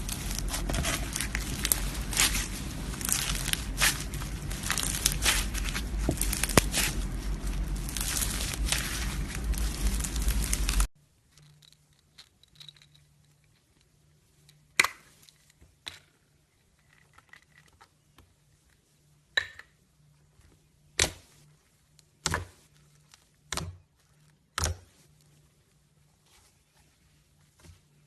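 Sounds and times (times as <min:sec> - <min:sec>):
slime popping: 0:00.0 - 0:10.8.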